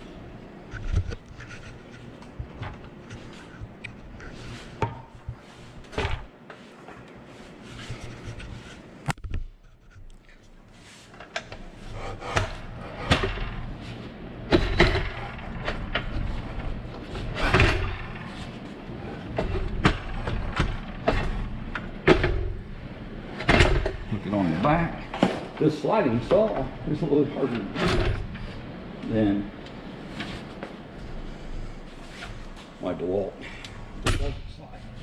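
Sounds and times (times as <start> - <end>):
metal clunks and scraping: 11.1 - 22.6.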